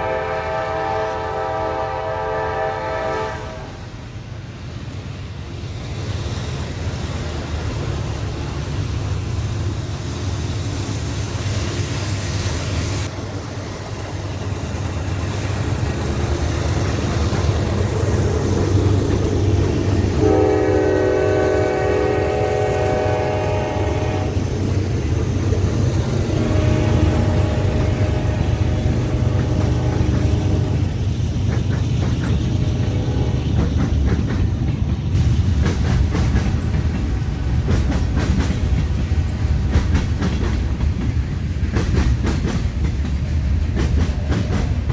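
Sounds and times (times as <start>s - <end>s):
train horn blast: 0.0s - 3.8s, 20.1s - 24.6s, 26.1s - 31.0s, 32.5s - 33.6s
train locomotive rumble: 0.0s - 44.9s.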